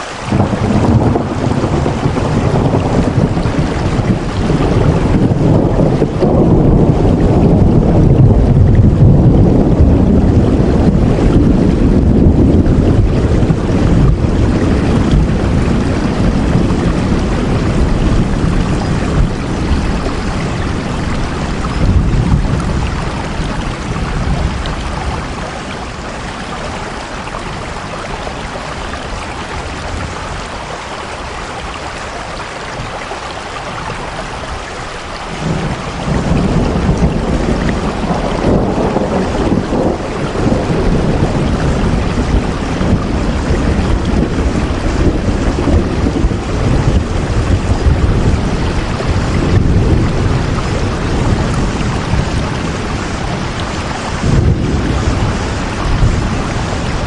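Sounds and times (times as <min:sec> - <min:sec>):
heavy rain falling: 0:00.0 - 0:57.0
deep low rumble: 0:00.3 - 0:25.6.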